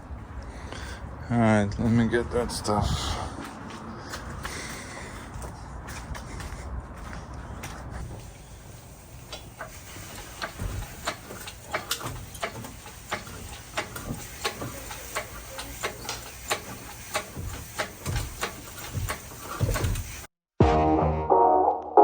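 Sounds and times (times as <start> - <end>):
light metallic clicks and knocks: 9.3 - 20.1.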